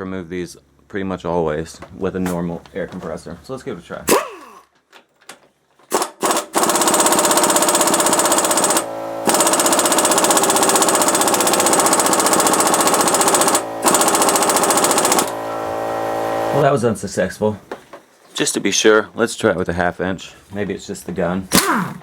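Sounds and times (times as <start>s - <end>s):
air impact wrench hammering: 4.1s - 4.6s, 5.9s - 16.6s, 21.5s - 22.0s.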